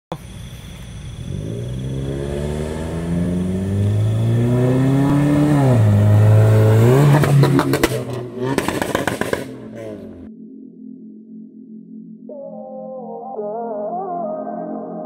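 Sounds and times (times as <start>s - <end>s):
car engine accelerating: 0.9s - 10.3s.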